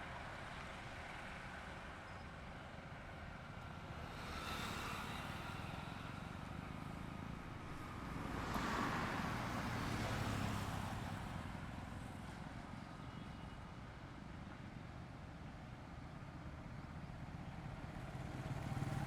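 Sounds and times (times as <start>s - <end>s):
highway traffic passing: 0.0s - 12.8s, 16.6s - 19.0s.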